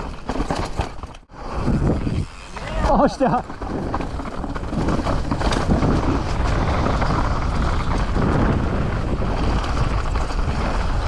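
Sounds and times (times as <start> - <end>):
bike rattling and knocking: 0.0 - 1.3, 2.0 - 11.0
bike tyres over dirt and rock: 0.0 - 11.0
wind buffeting microphone: 1.4 - 11.0.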